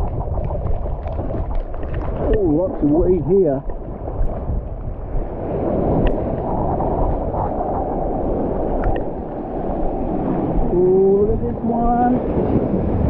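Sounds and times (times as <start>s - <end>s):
surf and sloshing water: 0.0s - 13.0s
wind rumbling on microphone: 0.0s - 13.0s
faint clicks: 8.8s - 9.1s.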